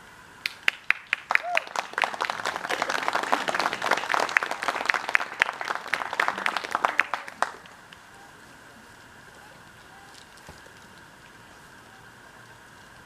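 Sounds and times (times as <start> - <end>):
audience applauding: 0.4 - 8.2.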